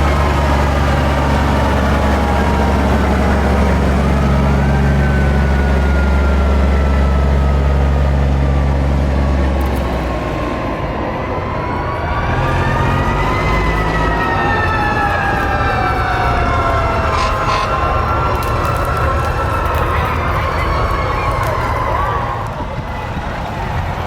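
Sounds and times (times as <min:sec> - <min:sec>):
fire truck engine rumbling: 0:00.0 - 0:24.0.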